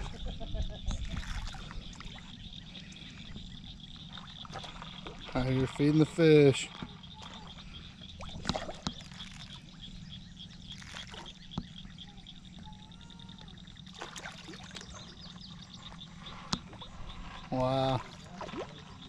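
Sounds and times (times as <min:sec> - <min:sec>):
frogs calling: 0:00.0 - 0:19.0
steady low hum: 0:00.0 - 0:19.0
fish splashing in water: 0:01.0 - 0:02.4, 0:06.8 - 0:10.0, 0:10.6 - 0:11.8, 0:13.8 - 0:15.2, 0:16.6 - 0:19.0.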